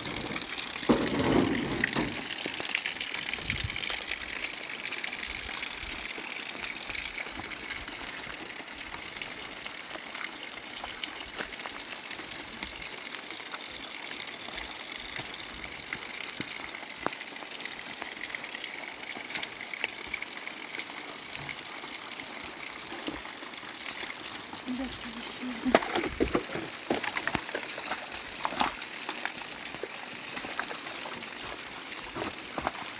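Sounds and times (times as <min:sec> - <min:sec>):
water rushing: 0:00.0 - 0:13.2, 0:22.6 - 0:32.9.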